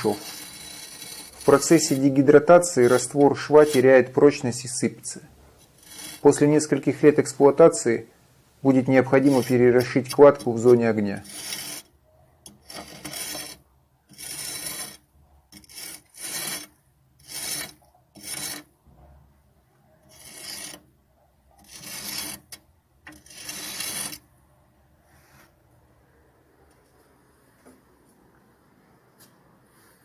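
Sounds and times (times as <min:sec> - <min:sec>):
hand tool scraping mortar: 0:00.0 - 0:07.9, 0:08.6 - 0:11.9, 0:12.5 - 0:18.7, 0:20.1 - 0:20.9, 0:21.6 - 0:24.2.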